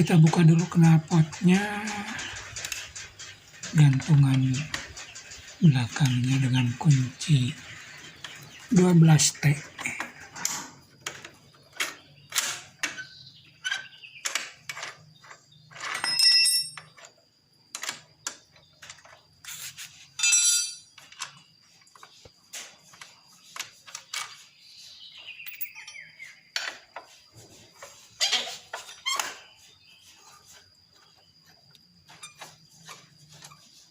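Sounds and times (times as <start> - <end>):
ringing metallic clinks: 15.8 - 17.1, 20.2 - 21.0, 25.4 - 26.3.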